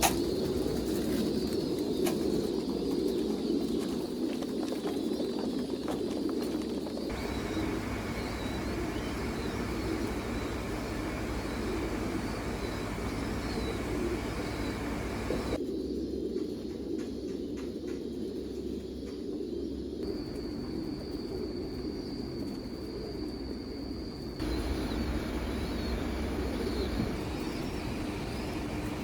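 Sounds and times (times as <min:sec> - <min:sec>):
pigeons cooing: 0:00.0 - 0:05.4, 0:07.1 - 0:17.0, 0:24.4 - 0:29.0.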